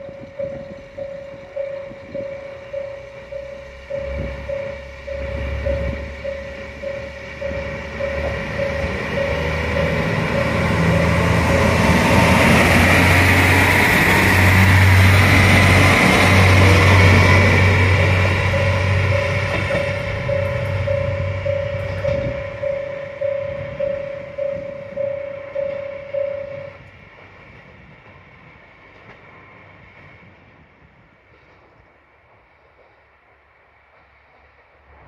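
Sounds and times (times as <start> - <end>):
diesel train engine drone: 0.0 - 35.0
rail noise: 0.0 - 35.0
level crossing bell ringing: 0.2 - 13.4, 16.4 - 26.8.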